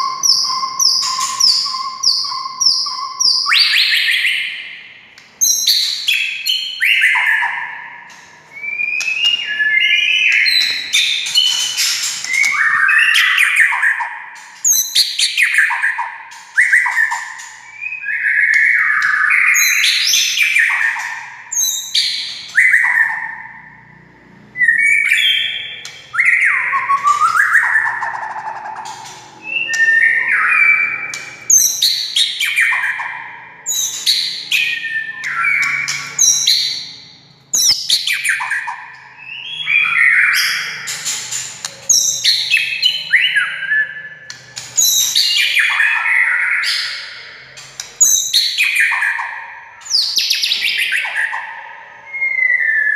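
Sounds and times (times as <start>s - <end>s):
bird singing whistles and clicks: 0.0s - 4.4s, 5.2s - 23.3s, 24.8s - 36.9s, 37.6s - 51.4s.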